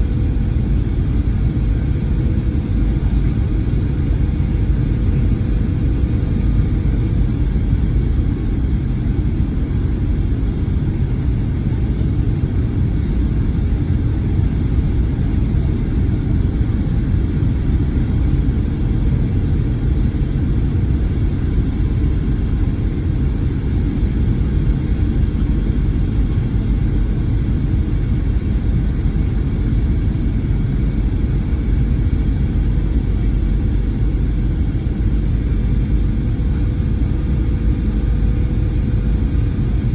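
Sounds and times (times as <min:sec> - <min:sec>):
aircraft cabin rumble: 0:00.0 - 0:39.9.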